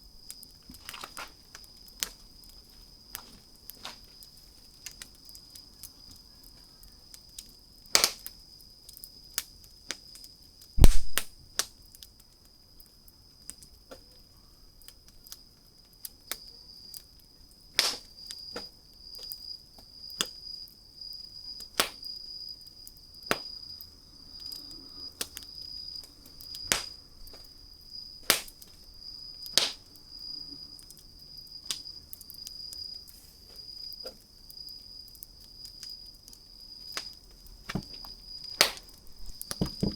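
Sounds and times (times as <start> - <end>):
wood fire crackling: 0.0 - 39.9
deep thump: 10.8 - 11.2, 37.7 - 38.0, 39.2 - 39.9.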